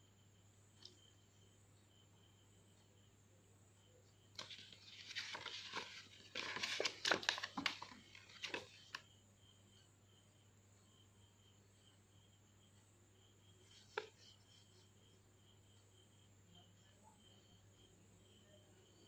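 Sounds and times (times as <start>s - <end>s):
paper leaflet crinkling and rustling: 4.4s - 9.0s, 13.7s - 14.4s.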